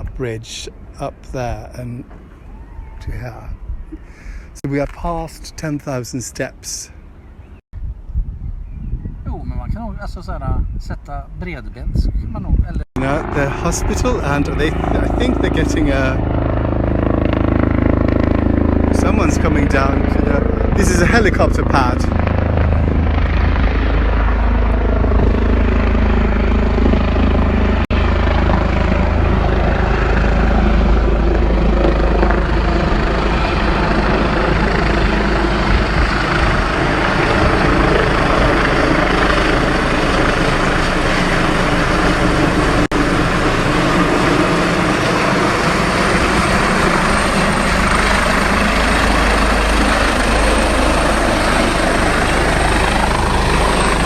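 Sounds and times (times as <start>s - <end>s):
helicopter rotor and engine: 12.4s - 54.0s.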